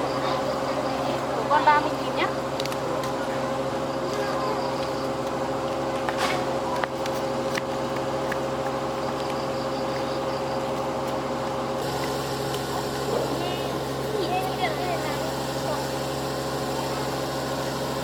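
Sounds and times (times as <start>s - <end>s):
engine hum: 0.0s - 18.0s.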